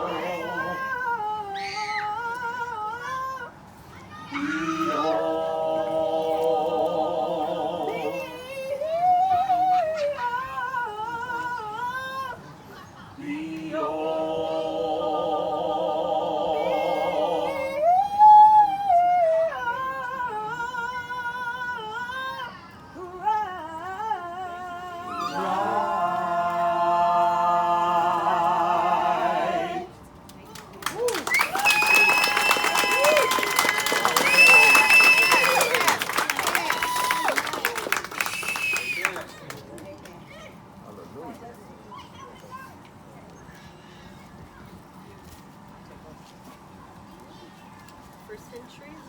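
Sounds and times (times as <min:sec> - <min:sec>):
group singing a cappella: 0:00.0 - 0:01.5, 0:04.4 - 0:12.1, 0:13.2 - 0:22.0, 0:23.1 - 0:30.0.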